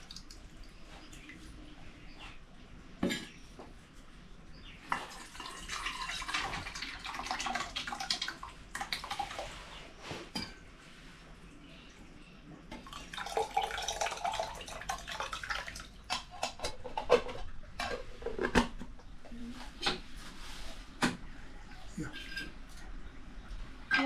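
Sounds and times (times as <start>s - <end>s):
metal dishes clinking: 3.0s - 3.4s.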